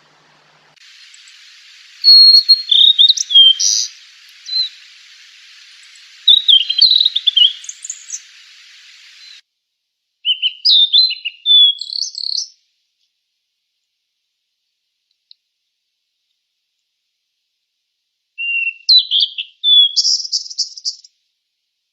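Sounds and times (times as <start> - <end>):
bird whistling song: 0.0 - 9.4, 10.3 - 12.5, 18.4 - 21.1
background hiss: 0.0 - 10.2.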